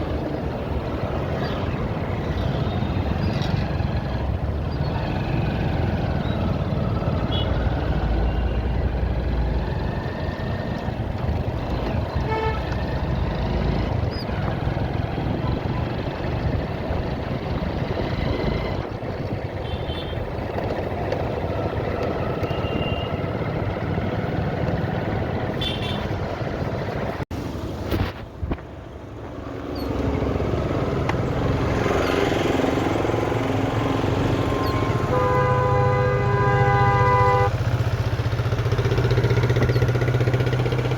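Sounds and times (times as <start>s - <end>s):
road traffic rushing: 0.0s - 40.9s
vehicle horn toots: 7.3s - 7.6s, 12.2s - 12.8s, 22.4s - 23.2s, 25.6s - 26.2s, 34.4s - 37.6s.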